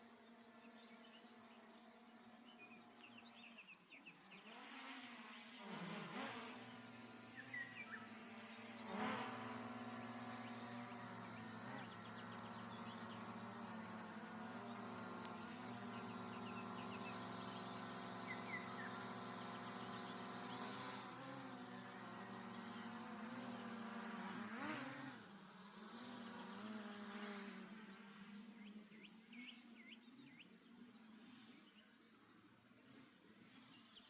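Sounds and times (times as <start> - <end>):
flying insect buzzing: 5.7 - 25.3.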